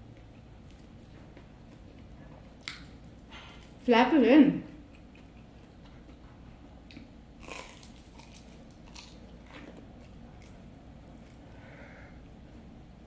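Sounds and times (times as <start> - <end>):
person chewing: 4.9 - 6.2, 6.8 - 11.6.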